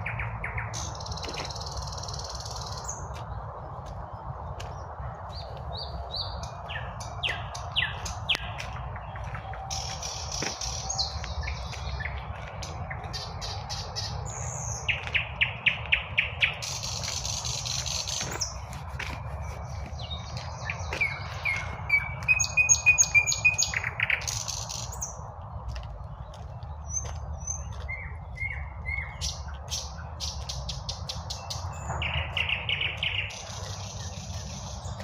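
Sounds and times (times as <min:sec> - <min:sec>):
songbirds singing: 0:00.0 - 0:35.0
steady low rumble: 0:00.0 - 0:35.0.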